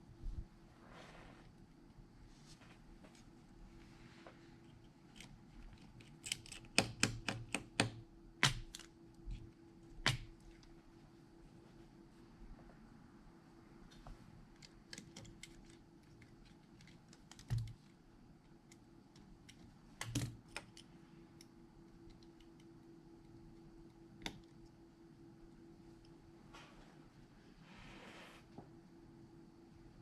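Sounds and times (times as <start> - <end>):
faint steady hum: 0.0 - 30.0
small tools clicking and tapping: 4.7 - 8.9.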